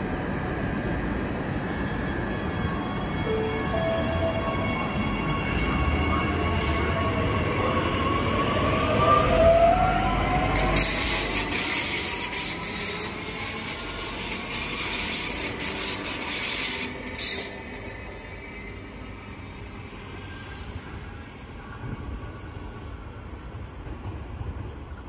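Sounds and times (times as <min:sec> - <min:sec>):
train rumble: 0:00.0 - 0:25.0
wheels squealing on rail: 0:05.5 - 0:23.9.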